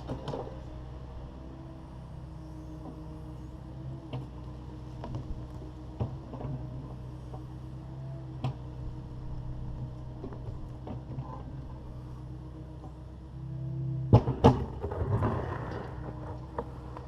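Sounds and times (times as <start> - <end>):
excavator diesel engine running: 0.0 - 17.0
sharp knocks and clunks: 14.1 - 15.4.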